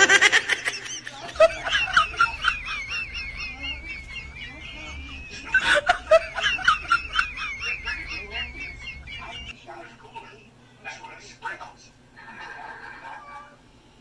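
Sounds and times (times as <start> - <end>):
noisy burst: 1.1 - 9.5
wavering whistle-like warble: 1.1 - 9.6.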